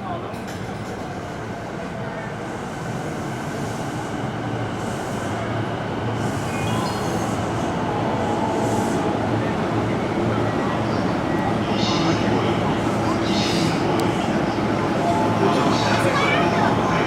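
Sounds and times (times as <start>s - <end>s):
electric train rumbling: 0.4s - 17.0s.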